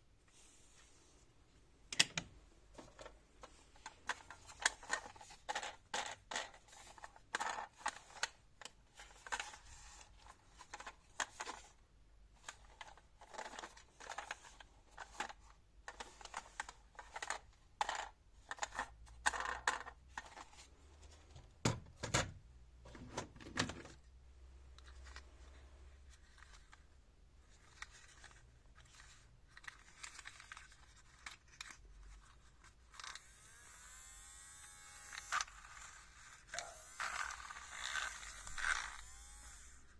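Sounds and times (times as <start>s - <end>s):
plastic toys clicking and rustling: 2.8s - 20.7s, 26.1s - 33.4s, 35.0s - 39.7s
small whirring: 32.9s - 39.9s.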